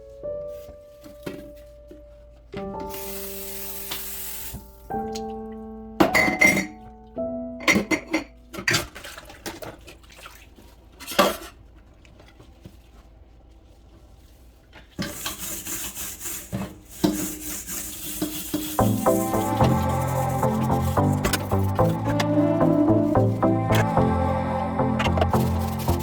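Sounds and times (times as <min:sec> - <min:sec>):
tap water running: 0:02.9 - 0:05.3, 0:15.0 - 0:24.2, 0:24.8 - 0:26.0
dishes and cutlery clinking: 0:06.0 - 0:06.9, 0:07.6 - 0:09.1.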